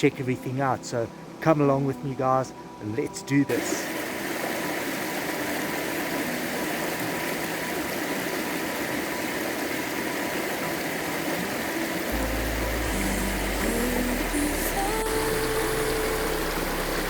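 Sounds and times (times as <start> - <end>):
stream water rushing: 0.0 - 17.0
background music with low bass: 12.0 - 17.0.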